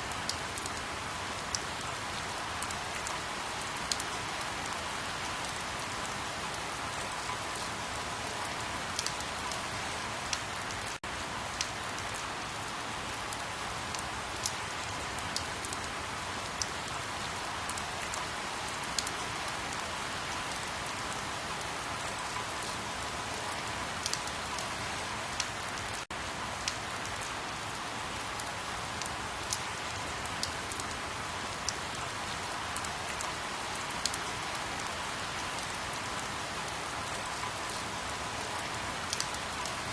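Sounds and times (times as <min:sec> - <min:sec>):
steady rain falling: 0:00.0 - 0:39.9
raindrops ticking: 0:29.0 - 0:31.0, 0:38.4 - 0:39.8.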